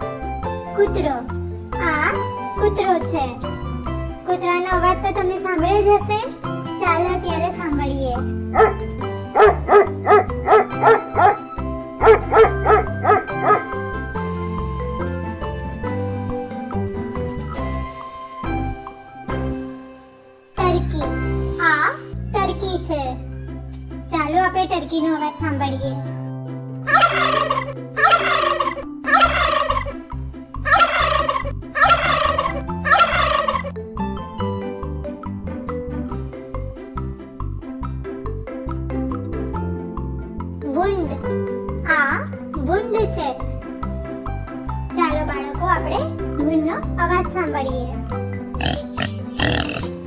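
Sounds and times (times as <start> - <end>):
children's background music: 0.0 - 50.0
dog barking: 8.6 - 8.8, 9.4 - 11.4, 12.0 - 13.8
turkey gobbling: 28.0 - 29.8.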